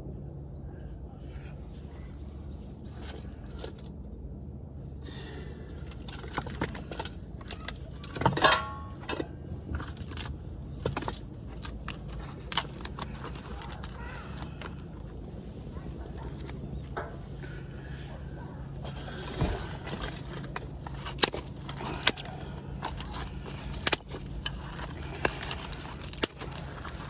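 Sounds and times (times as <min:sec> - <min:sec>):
objects clicking and clattering: 0:05.7 - 0:15.2, 0:18.8 - 0:27.0
ringing clatter: 0:06.7 - 0:09.3.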